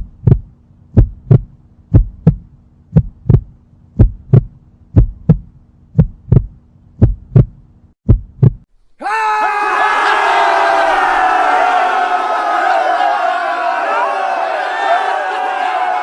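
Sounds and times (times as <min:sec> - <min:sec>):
heartbeat thumps: 0:00.0 - 0:08.7
crowd shouting: 0:09.0 - 0:16.0.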